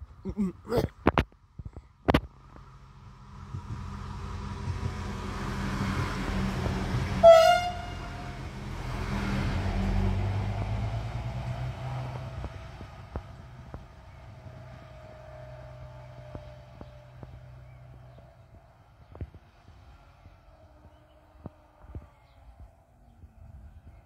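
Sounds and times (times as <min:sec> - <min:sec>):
diesel train rumbling past: 0:02.4 - 0:21.8
train horn blast: 0:07.2 - 0:08.4.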